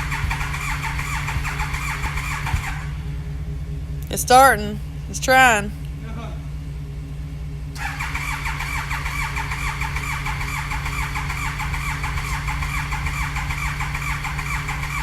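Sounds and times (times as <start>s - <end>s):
motorcycle starter cranking engine: 0.0s - 3.1s, 7.7s - 15.0s
steady low hum: 0.0s - 15.0s.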